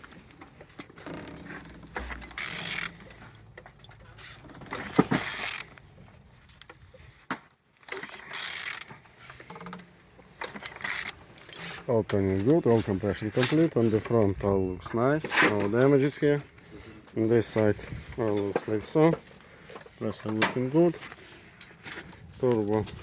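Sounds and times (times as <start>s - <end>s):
diesel engine turned by hand: 0.0s - 6.9s, 7.8s - 23.0s.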